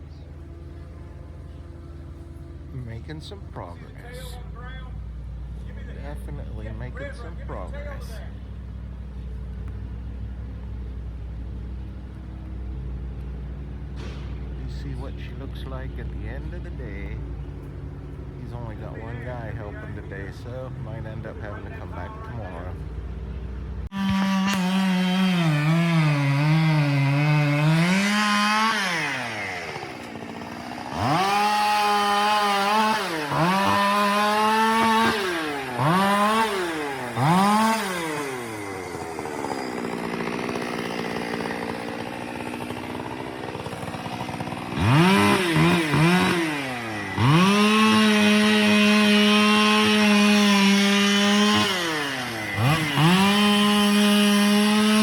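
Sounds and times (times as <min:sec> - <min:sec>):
chainsaw revving and idling: 0:00.0 - 0:55.0.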